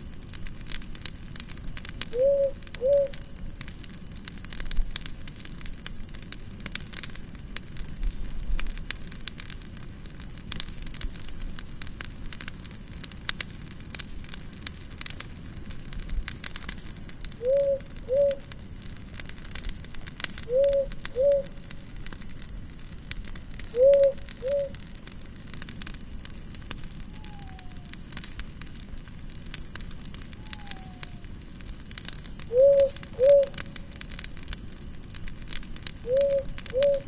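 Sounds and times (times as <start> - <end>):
campfire crackling and popping: 0.0 - 37.0
insect chirps: 2.1 - 3.4, 8.0 - 8.6, 11.0 - 13.5, 17.4 - 18.9, 20.4 - 21.8, 23.7 - 24.8, 27.0 - 27.9, 30.4 - 31.2, 32.4 - 33.9, 36.0 - 37.0.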